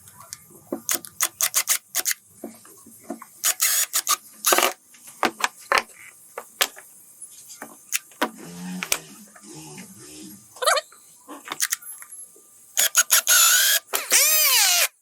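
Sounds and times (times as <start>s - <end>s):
clicks and knocks of small parts: 3.4s - 6.9s, 11.5s - 12.1s.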